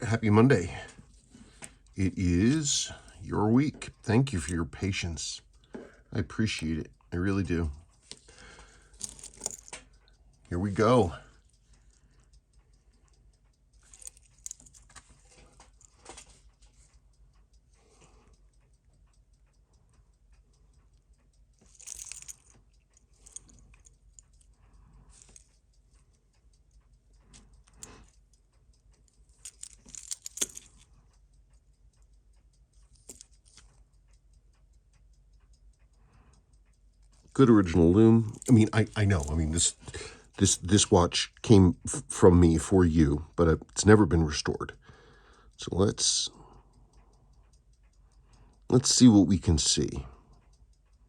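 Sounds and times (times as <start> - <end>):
handling clicks and rustles: 0.0 - 11.9, 13.7 - 17.0, 21.5 - 26.2, 27.1 - 31.1, 32.8 - 33.9, 37.2 - 40.9
watch ticking: 0.0 - 51.0.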